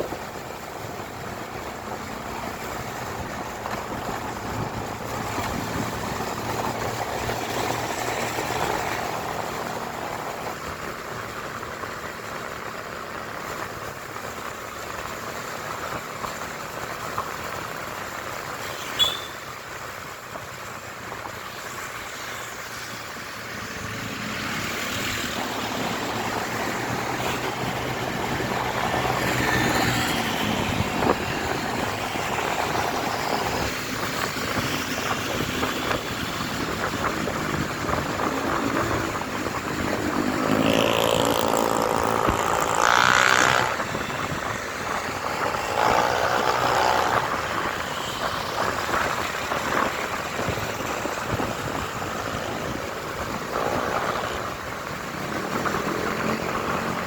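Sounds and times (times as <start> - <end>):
wind and road noise: 0.0 - 57.0
motorcycle engine running: 25.4 - 57.0.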